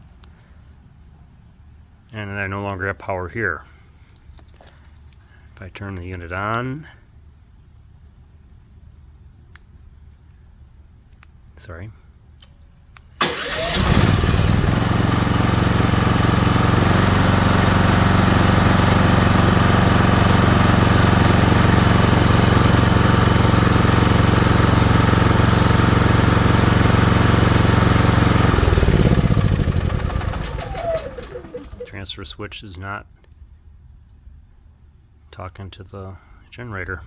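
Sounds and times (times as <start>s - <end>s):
generator engine running: 13.2s - 32.2s.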